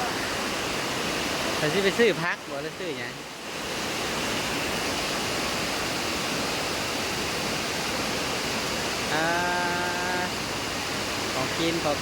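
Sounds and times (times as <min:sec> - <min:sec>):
heavy rain falling: 0:08.8 - 0:12.0
person saying ah: 0:09.1 - 0:10.4.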